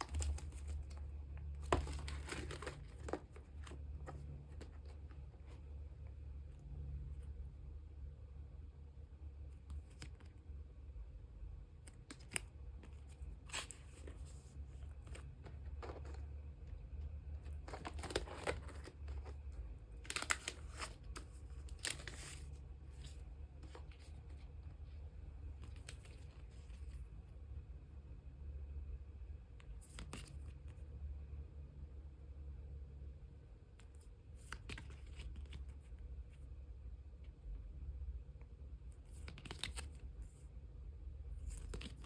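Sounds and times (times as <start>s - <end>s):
plastic sleeves crinkling: 0.0s - 5.8s, 11.8s - 27.0s, 39.0s - 40.4s, 41.4s - 42.0s
steady low hum: 0.0s - 42.0s.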